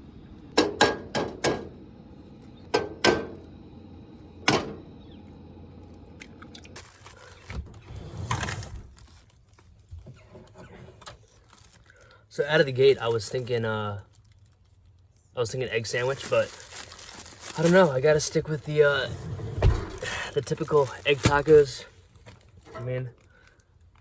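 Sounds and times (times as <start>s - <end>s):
cooking gear clicking and tapping: 0.5s - 1.7s, 2.7s - 3.6s.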